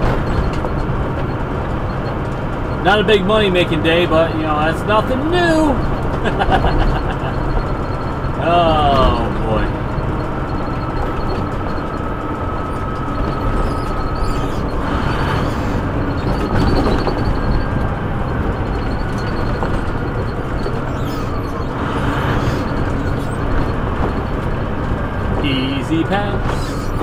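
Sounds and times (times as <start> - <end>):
truck engine and road noise: 0.0 - 27.0.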